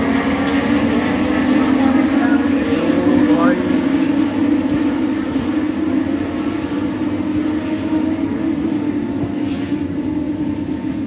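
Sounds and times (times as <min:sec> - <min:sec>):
racing motorcycle engines: 0:00.0 - 0:11.0.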